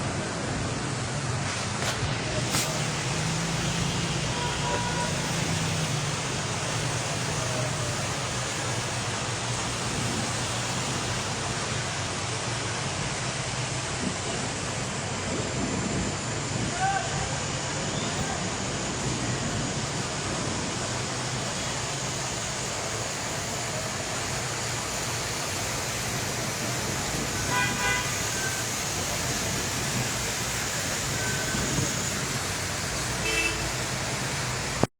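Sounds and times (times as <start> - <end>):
heavy rain: 0.0 - 34.9
traffic on a wet road: 0.0 - 34.9
car horn toot: 4.3 - 5.2, 27.4 - 28.6, 33.2 - 33.8.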